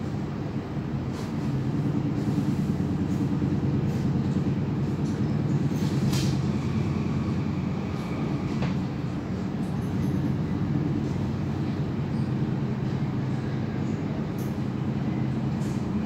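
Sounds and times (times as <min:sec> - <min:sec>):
train rumbling on rails: 0:00.0 - 0:16.0.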